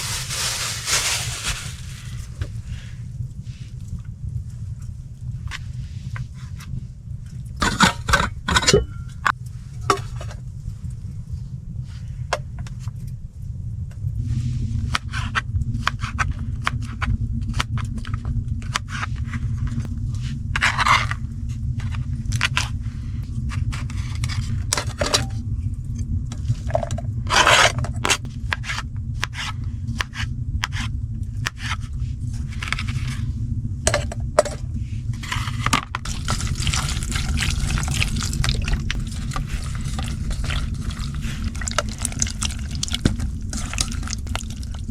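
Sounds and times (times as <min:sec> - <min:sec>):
low rumble: 0:00.0 - 0:44.9
scraping and knocking: 0:07.6 - 0:09.3, 0:35.2 - 0:44.9.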